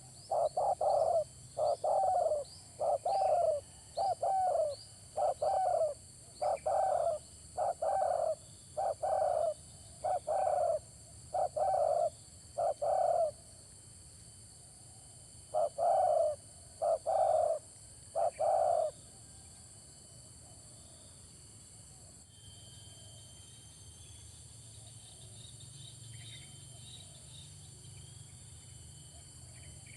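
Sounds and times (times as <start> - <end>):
dove cooing: 0.0 - 13.4, 15.5 - 19.0.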